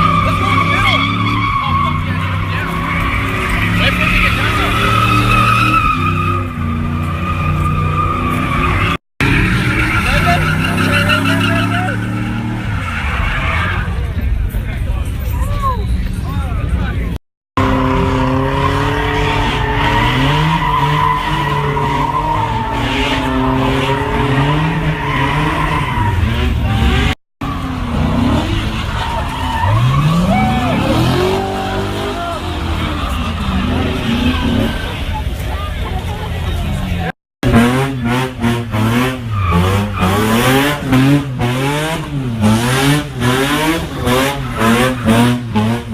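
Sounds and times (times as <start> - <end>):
tire squeal: 0.0 - 15.8, 18.0 - 36.7, 38.8 - 45.9
engine at high revs: 17.6 - 29.0, 29.8 - 35.1, 37.4 - 45.9.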